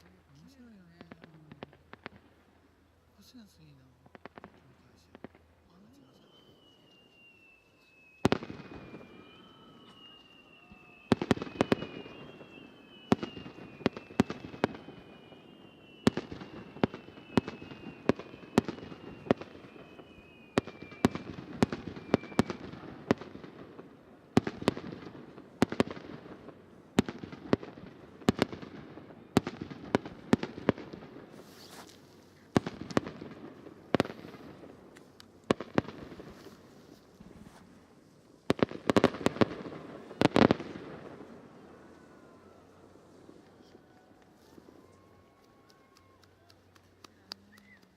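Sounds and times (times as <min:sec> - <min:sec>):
fireworks bangs: 0:04.0 - 0:46.0
falling firework whistles: 0:05.8 - 0:23.4, 0:27.0 - 0:34.7.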